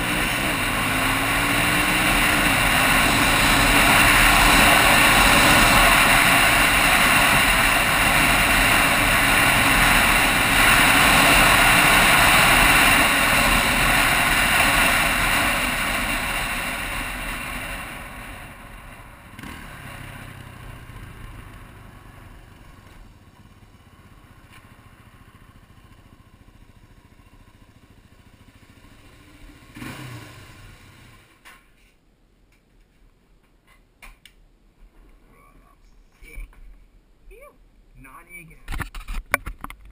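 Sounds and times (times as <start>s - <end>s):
dirt bike engine running: 0.0s - 31.4s.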